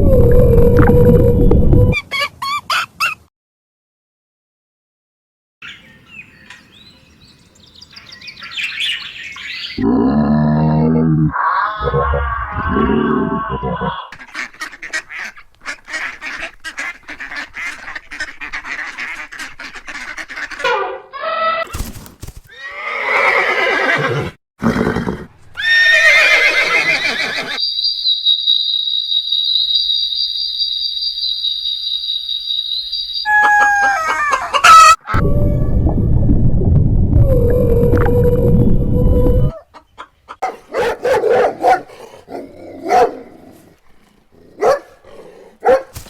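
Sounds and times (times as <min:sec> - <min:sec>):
whinny-like animal calls: 0:09.8 - 0:14.2
steady high whistling tone: 0:27.6 - 0:33.4
fowl calls: 0:30.8 - 0:35.2.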